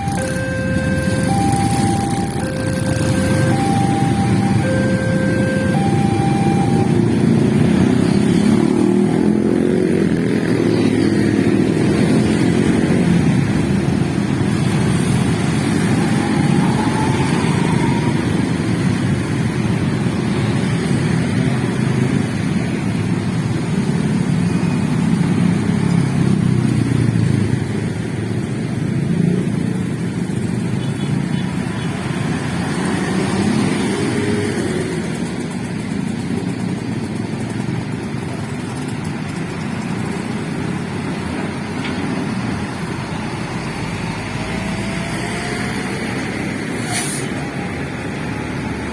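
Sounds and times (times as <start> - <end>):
cars passing: 0.0 - 48.9
motorcycles passing: 0.0 - 48.9.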